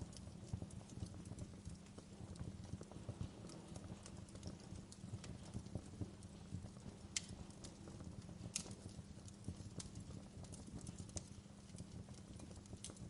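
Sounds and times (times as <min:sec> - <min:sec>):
fire crackling and popping: 0:00.0 - 0:13.0
fire rumbling: 0:00.0 - 0:13.0.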